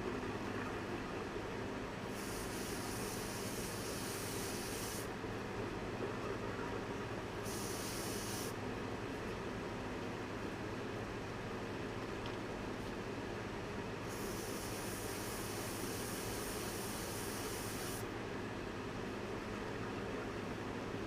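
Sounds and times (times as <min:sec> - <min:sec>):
steady low hum: 0:00.0 - 0:21.0
hiss bursts: 0:02.1 - 0:05.1, 0:07.4 - 0:08.6, 0:14.1 - 0:18.0.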